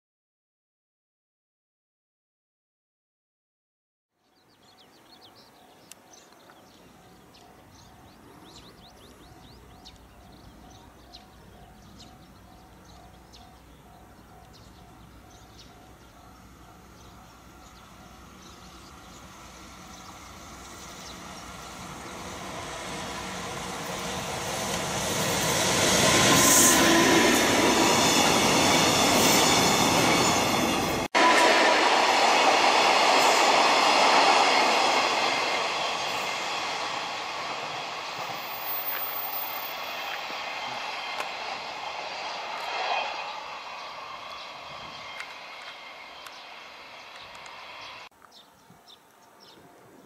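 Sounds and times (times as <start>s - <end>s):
freight train passing: 4.4s - 48.1s
wheels screeching: 18.5s - 48.1s.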